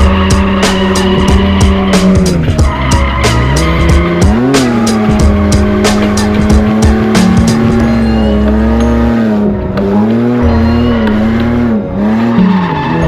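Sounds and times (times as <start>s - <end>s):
tyres squealing: 0.0s - 8.4s
music with steady beat: 0.0s - 11.7s
car engine revving high: 0.0s - 13.0s.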